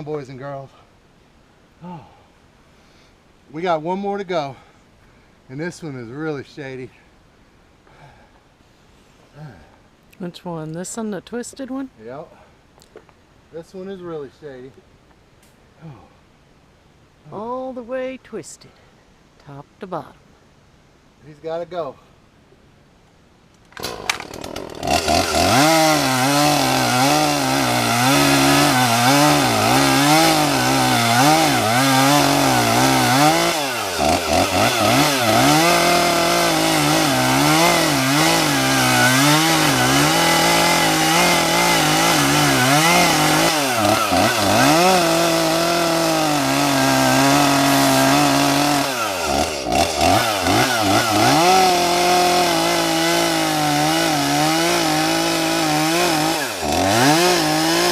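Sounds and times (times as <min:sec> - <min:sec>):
chainsaw cutting wood: 0:23.7 - 0:57.9.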